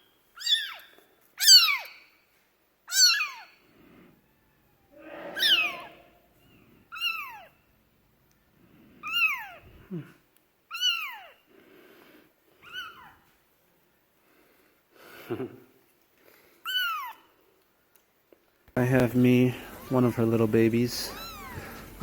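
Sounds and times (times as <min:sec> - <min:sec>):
kitten mewing: 0:04.3 - 0:06.3, 0:09.0 - 0:10.0, 0:19.6 - 0:20.2, 0:21.0 - 0:22.0.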